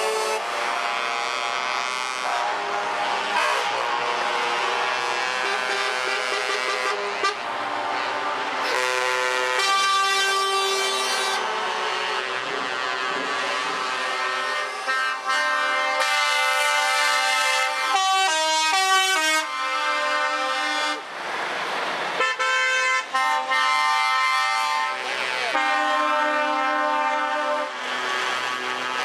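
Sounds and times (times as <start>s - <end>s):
truck air horns blaring: 0.0s - 21.2s, 22.1s - 29.0s.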